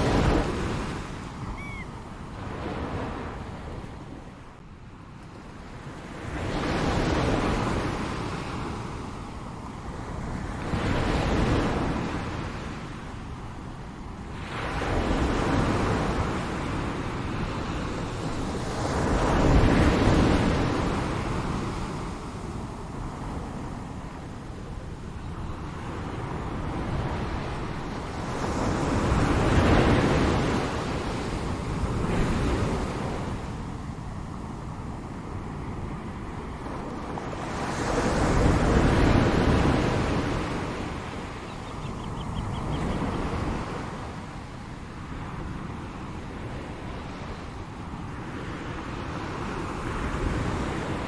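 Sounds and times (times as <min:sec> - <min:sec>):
ocean waves washing in: 0:00.0 - 0:04.8.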